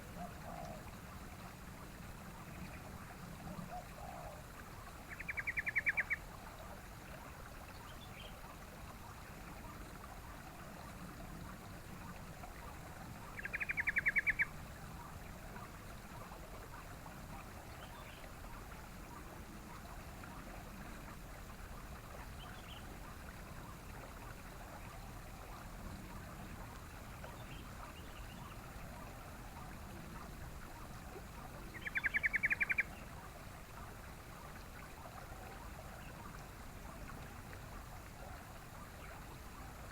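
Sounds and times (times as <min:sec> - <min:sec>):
bulbul chattering call: 0:31.7 - 0:32.9.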